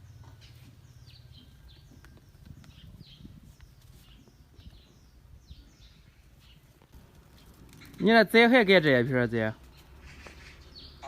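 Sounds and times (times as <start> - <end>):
small birds chirping: 0.0 - 11.0
low outdoor rumble: 4.5 - 11.0.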